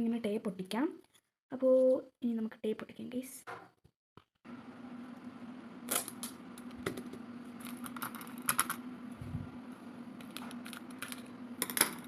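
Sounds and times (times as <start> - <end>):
steady low hum: 4.5 - 12.0.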